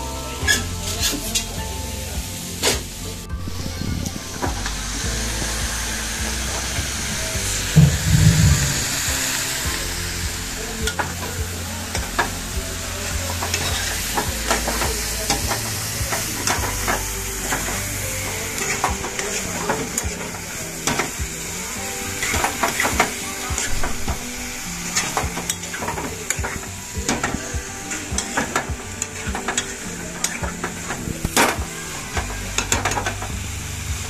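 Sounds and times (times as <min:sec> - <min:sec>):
heavy low thump: 0:03.3 - 0:11.0
chicken sizzling in pan: 0:04.5 - 0:34.0.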